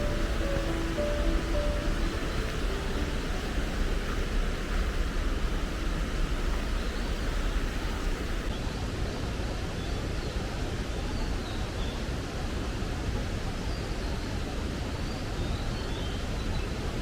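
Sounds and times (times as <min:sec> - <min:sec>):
stream water rushing: 0:00.0 - 0:08.8.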